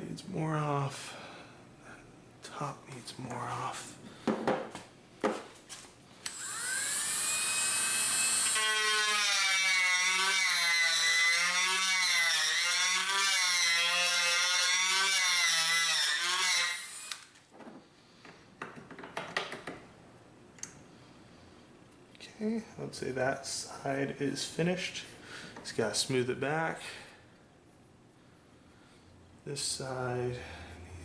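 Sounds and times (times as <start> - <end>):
rotary tool grinding wood: 6.3 - 17.2.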